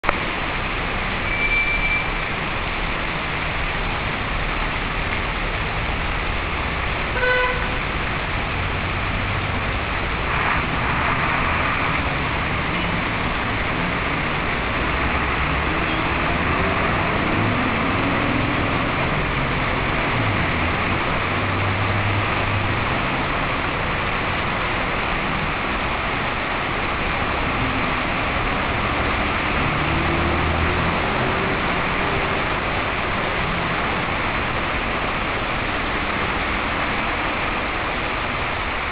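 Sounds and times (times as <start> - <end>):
rain and tyres in water: 0.0 - 38.9
traffic engines running: 0.0 - 38.9
car horn toots: 7.2 - 7.8.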